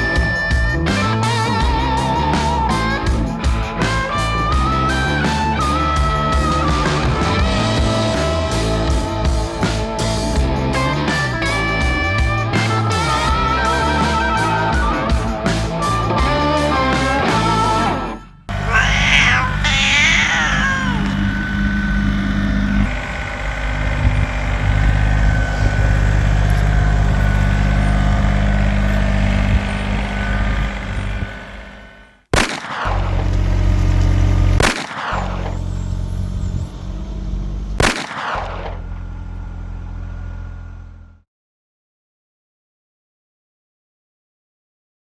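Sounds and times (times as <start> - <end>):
excavator diesel engine running: 18.5 - 32.1, 38.7 - 41.2.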